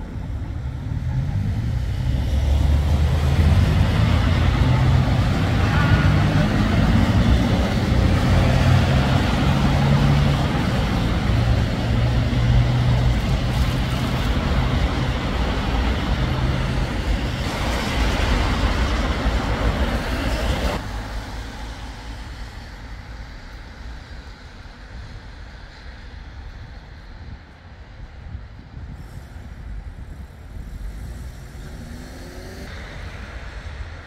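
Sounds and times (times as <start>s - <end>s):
heavy vehicle engine humming: 0.0s - 23.2s
passing traffic: 0.0s - 34.0s.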